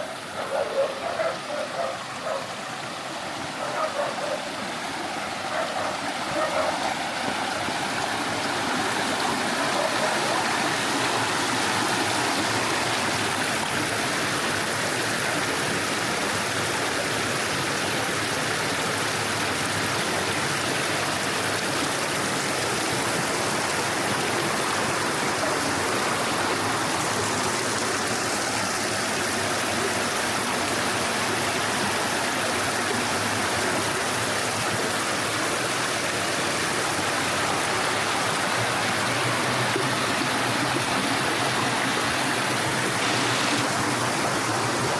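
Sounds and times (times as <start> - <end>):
stream water rushing: 0.0 - 44.9.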